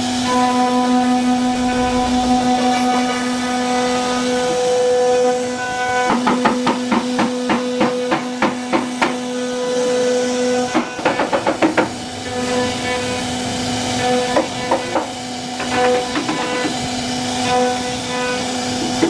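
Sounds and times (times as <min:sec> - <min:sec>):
router spindle whining: 0:00.0 - 0:19.0
sharp knocks: 0:06.0 - 0:09.4, 0:10.7 - 0:12.0.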